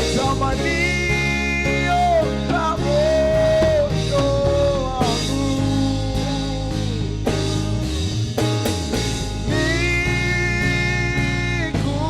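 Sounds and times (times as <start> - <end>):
sustained band chords: 0.0 - 12.0
drum strokes: 3.9 - 10.0.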